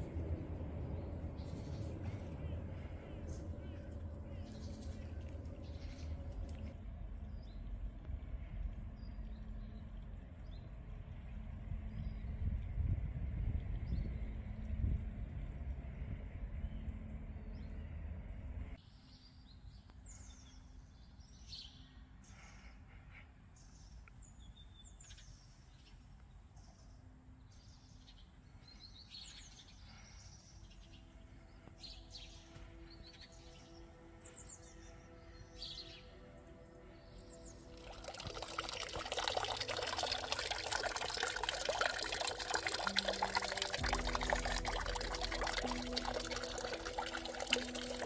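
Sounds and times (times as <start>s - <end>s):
low rumble: 0.0s - 18.8s, 42.7s - 48.0s
faint steady tones: 31.0s - 48.0s.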